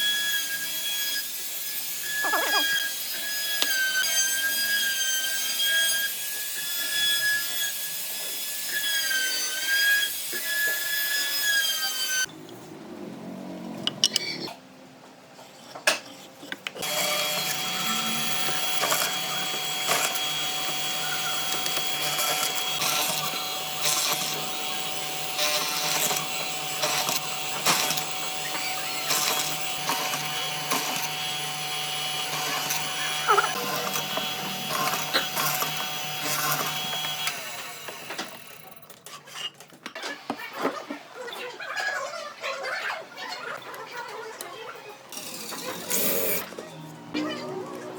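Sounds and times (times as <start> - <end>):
power tool whining: 0.0 - 12.3, 16.8 - 38.8, 45.2 - 46.8.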